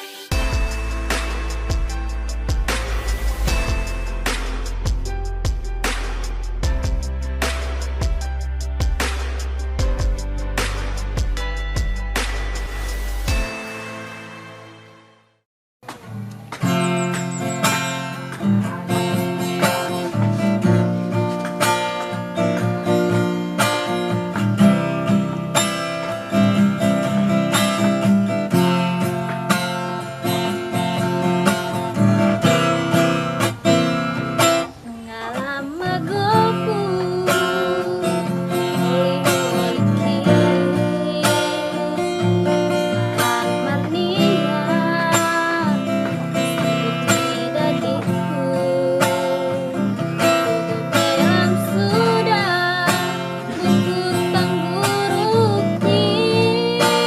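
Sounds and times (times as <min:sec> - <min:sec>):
acoustic guitar strumming: 0:00.0 - 0:15.2, 0:15.8 - 0:57.0
woman singing: 0:18.4 - 0:21.0, 0:34.8 - 0:57.0.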